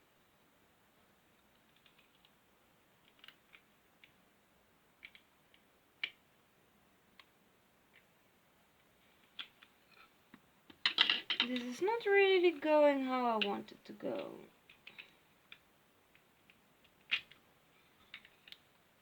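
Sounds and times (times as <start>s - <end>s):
plastic building blocks clicking: 1.3s - 4.3s, 4.9s - 6.3s, 7.1s - 8.2s, 8.8s - 11.8s, 13.1s - 19.0s.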